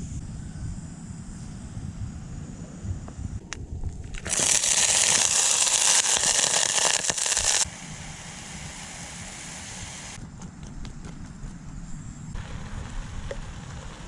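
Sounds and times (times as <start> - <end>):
food sizzling in a hot pan: 4.2 - 10.2.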